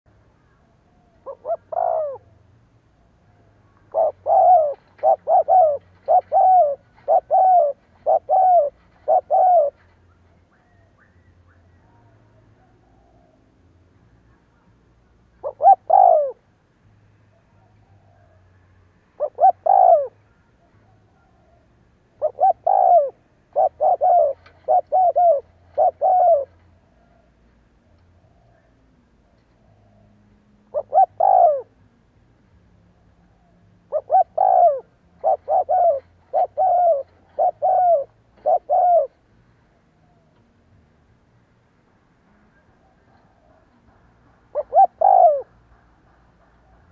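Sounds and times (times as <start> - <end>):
dove cooing: 0.9 - 2.6, 3.2 - 13.4, 15.3 - 16.5, 19.2 - 27.5, 28.1 - 32.0, 33.0 - 40.6, 42.6 - 45.8.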